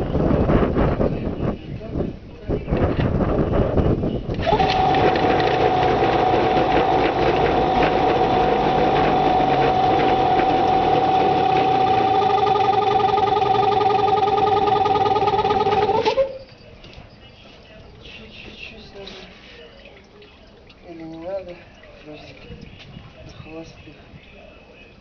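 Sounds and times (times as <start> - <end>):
outboard motor idling: 4.4 - 16.1.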